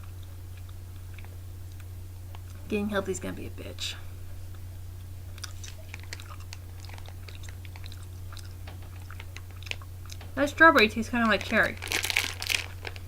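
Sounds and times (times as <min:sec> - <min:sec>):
low electrical hum: 0:00.0 - 0:13.0
person chewing gummy candy: 0:05.3 - 0:10.3, 0:11.5 - 0:13.0.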